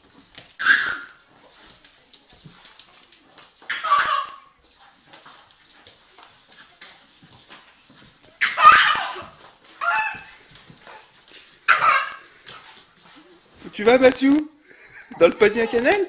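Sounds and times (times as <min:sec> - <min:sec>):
faint scuffling: 0:00.0 - 0:16.0
loud animal cries: 0:03.7 - 0:04.5.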